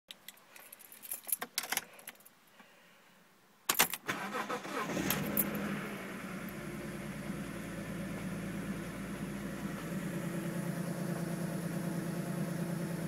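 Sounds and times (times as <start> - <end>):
keys jingling: 0.3 - 2.3
car engine starting and idling: 4.0 - 13.0.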